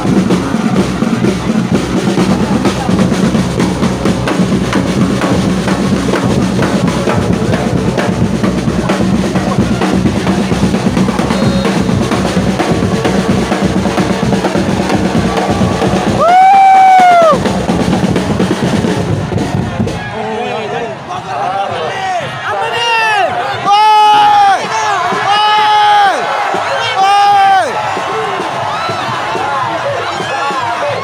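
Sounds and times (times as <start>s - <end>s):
drums beaten in fast rhythm: 0.0s - 20.1s, 23.7s - 31.0s
loud horn blast: 11.2s - 12.5s.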